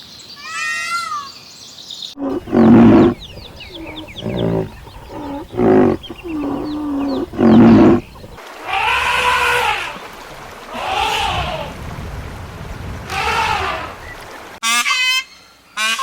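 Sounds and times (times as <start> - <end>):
small birds chirping: 1.2 - 10.1
deep animal calls: 2.2 - 11.8, 13.0 - 14.2
rising and falling animal calls: 2.2 - 11.8, 13.1 - 14.1.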